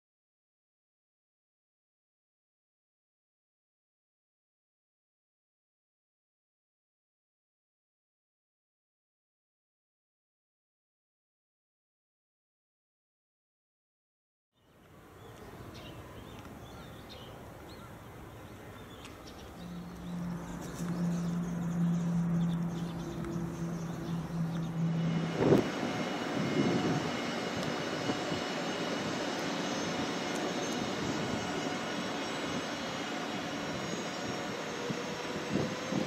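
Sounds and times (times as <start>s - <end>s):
low hum: 14.7s - 36.0s
train motors whirring: 19.1s - 36.0s.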